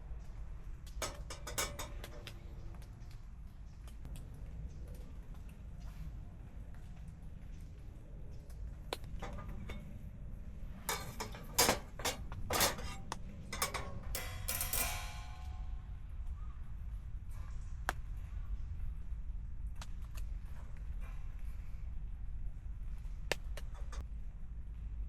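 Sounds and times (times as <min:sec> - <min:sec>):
metal parts clanking: 0:01.0 - 0:02.3, 0:10.8 - 0:15.8.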